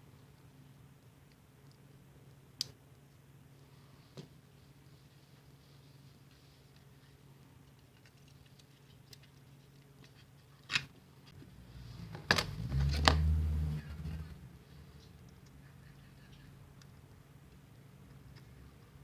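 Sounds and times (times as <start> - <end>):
rubbing and handling noise: 3.5 - 15.9.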